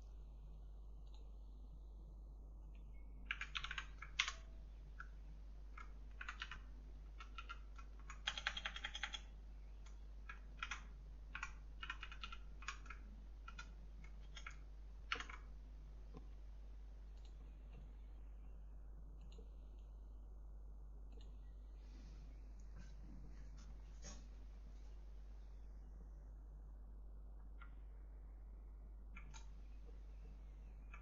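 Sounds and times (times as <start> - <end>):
computer keyboard typing: 3.2 - 15.5, 29.1 - 29.5, 30.8 - 31.0.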